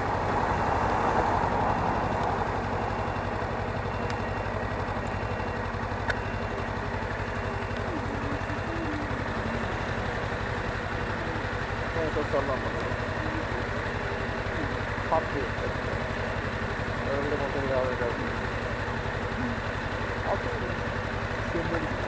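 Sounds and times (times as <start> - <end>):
wind and road noise: 0.0 - 3.1
motorcycle engine running: 0.0 - 22.0.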